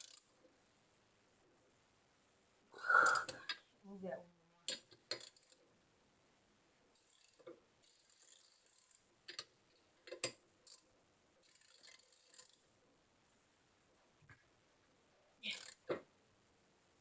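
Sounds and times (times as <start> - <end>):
bike parts and tools clicking: 0.0 - 0.3, 4.7 - 5.6, 7.0 - 12.6, 15.4 - 16.0.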